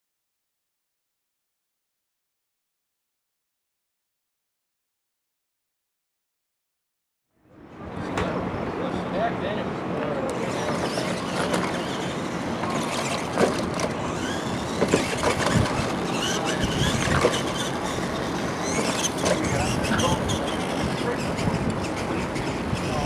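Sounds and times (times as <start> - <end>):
toy trucks mechanical noise: 10.2 - 23.0.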